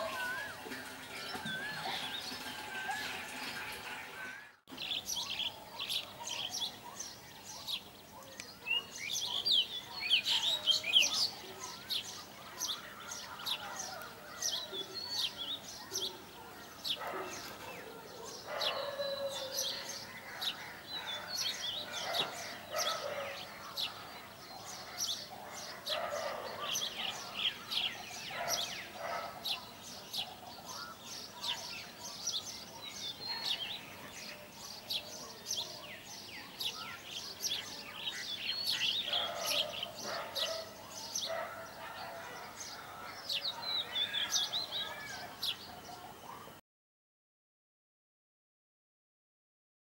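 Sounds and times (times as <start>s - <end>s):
small birds chirping: 0.0s - 46.6s.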